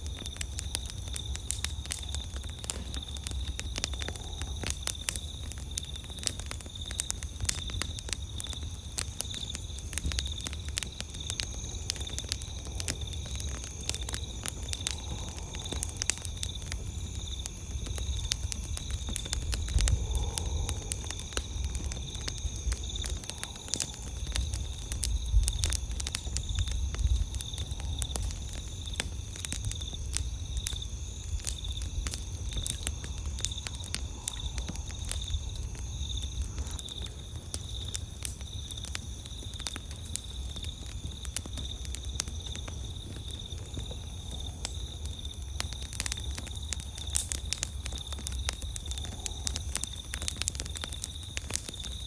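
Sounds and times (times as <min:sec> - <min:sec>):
campfire crackling and popping: 0:00.0 - 0:52.0
night insects chirring: 0:00.0 - 0:52.0.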